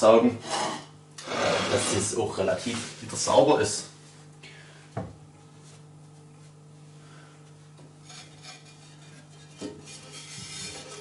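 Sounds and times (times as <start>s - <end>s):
faint steady hum: 0.0s - 11.0s
firebrick scraping and clinking: 8.0s - 11.0s.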